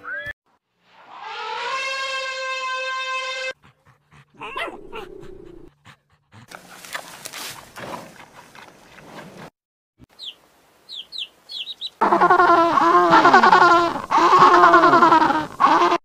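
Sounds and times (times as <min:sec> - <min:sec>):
panda chewing bamboo: 0:03.7 - 0:09.5
dog whimpering yips: 0:04.4 - 0:05.7
high falling chirps: 0:10.2 - 0:12.0.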